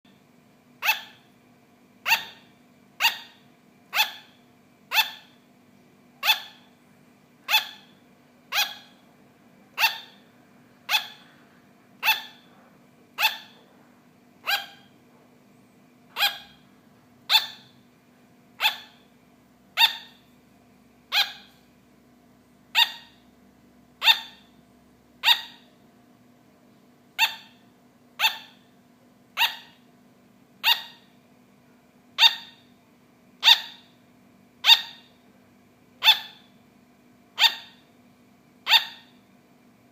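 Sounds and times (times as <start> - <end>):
sugar glider barking: 0.1 - 1.4, 2.0 - 5.4, 6.2 - 6.8, 7.4 - 15.0, 16.1 - 17.9, 18.5 - 19.1, 19.7 - 20.3, 21.1 - 21.6, 22.7 - 23.3, 24.0 - 24.6, 25.2 - 25.8, 27.1 - 28.7, 29.3 - 29.9, 30.6 - 31.2, 32.1 - 32.7, 33.4 - 34.0, 34.6 - 35.2, 36.0 - 36.6, 37.3 - 37.9, 38.6 - 39.2.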